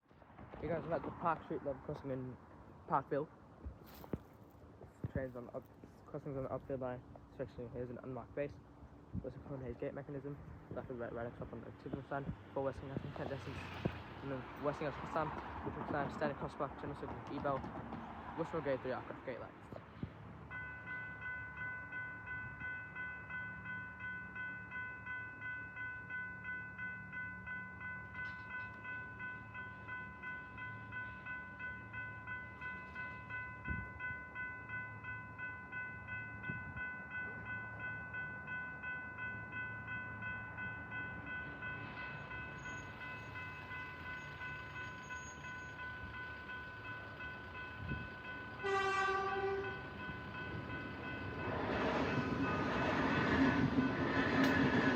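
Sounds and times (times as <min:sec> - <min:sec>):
train horn: 0:48.6 - 0:49.9.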